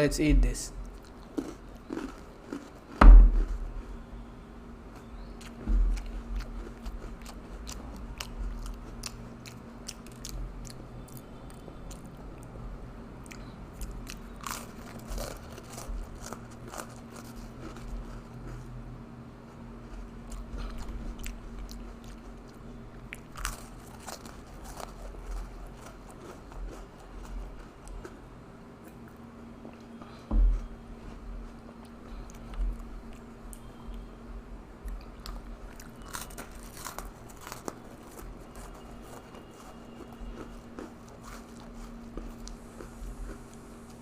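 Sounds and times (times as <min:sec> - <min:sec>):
cookies crunching: 0:00.8 - 0:04.1, 0:05.0 - 0:12.5, 0:13.2 - 0:18.7, 0:19.4 - 0:28.2, 0:34.9 - 0:44.0
loud thump: 0:03.0 - 0:03.7.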